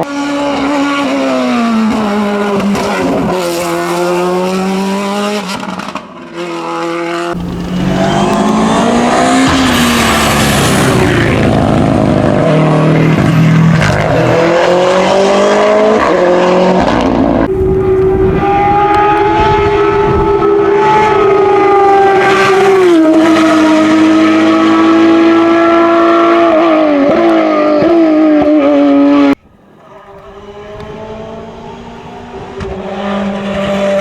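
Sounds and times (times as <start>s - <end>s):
race car engines at high revs: 0.0s - 34.0s.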